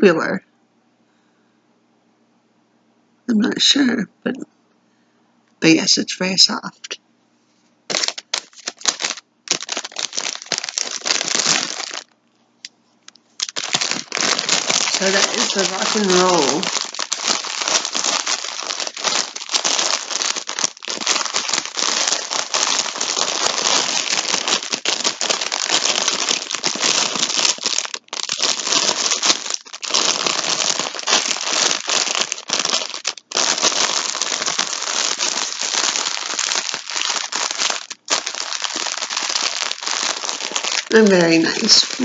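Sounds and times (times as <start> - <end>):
plastic bag crinkling: 7.9 - 12.2, 13.0 - 42.0.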